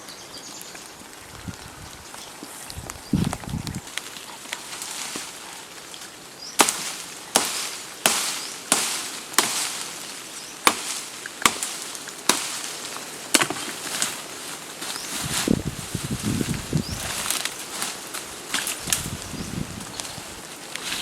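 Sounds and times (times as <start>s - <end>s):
axe chopping wood: 6.6s - 9.9s, 10.6s - 12.7s, 13.3s - 14.2s.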